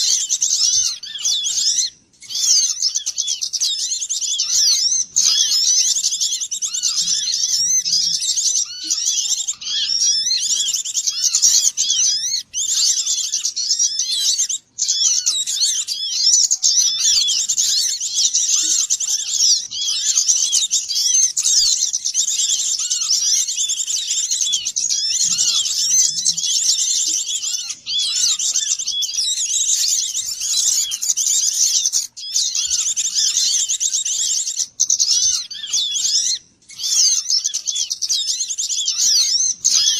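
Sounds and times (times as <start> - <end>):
songbirds chirping and twittering: 0.0 - 39.9.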